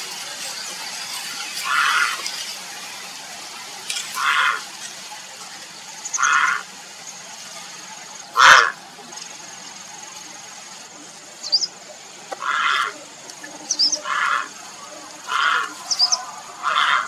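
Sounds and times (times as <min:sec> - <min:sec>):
heron croaking calls: 0:01.6 - 0:02.2, 0:04.2 - 0:04.7, 0:06.0 - 0:06.7, 0:08.3 - 0:08.8, 0:12.3 - 0:13.1, 0:13.7 - 0:17.0
small bird chirp: 0:11.4 - 0:11.8, 0:13.7 - 0:14.1, 0:15.8 - 0:16.2.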